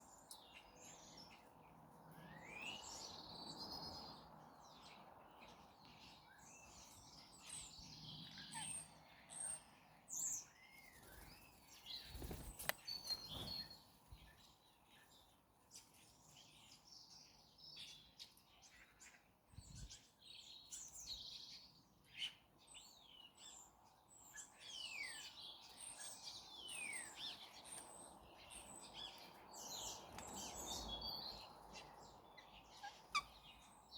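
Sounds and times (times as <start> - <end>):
birds chirping: 25.0 - 33.9.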